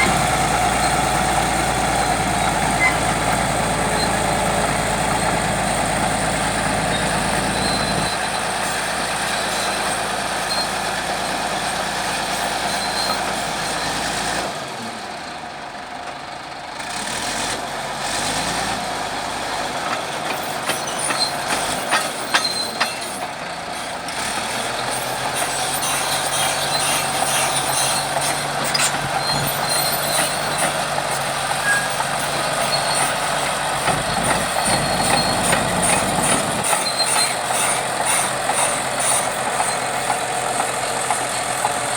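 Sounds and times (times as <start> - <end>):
bulldozer diesel engine: 0.0 - 41.9
metallic knocks and clanks: 20.3 - 23.3.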